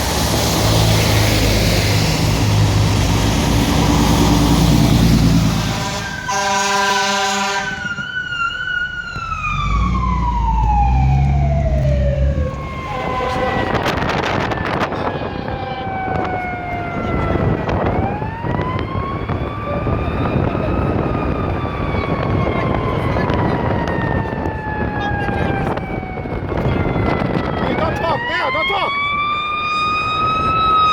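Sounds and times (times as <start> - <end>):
truck engine rumble: 0.0 - 28.2
siren wailing: 0.8 - 30.9
fire truck multi-tone horn: 4.7 - 10.6, 11.3 - 18.6.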